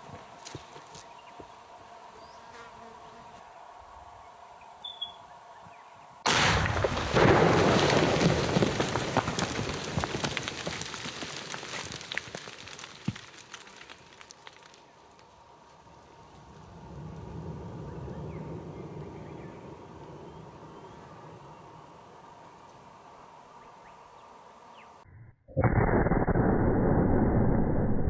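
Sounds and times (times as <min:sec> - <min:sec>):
rock blast bang: 0:06.3 - 0:11.8
debris ticks and knocks: 0:07.0 - 0:14.8.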